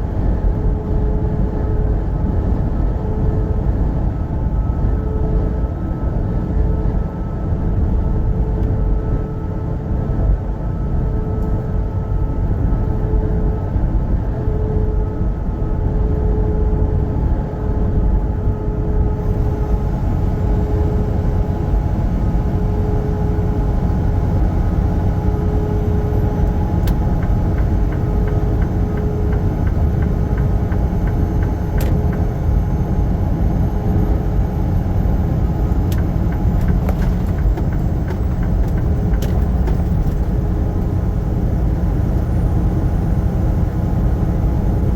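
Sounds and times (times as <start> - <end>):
truck road and engine rumble: 16.9 - 44.9
faint steady whine: 18.4 - 44.9.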